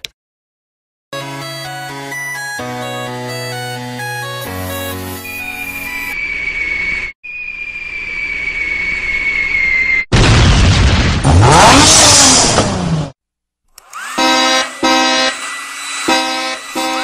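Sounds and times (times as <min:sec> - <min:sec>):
vehicle engine rush: 0:11.2 - 0:13.2.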